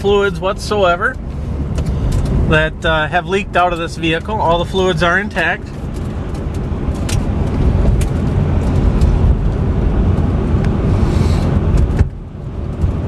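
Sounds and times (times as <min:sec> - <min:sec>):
car engine and road noise in cabin: 0:00.0 - 0:13.0.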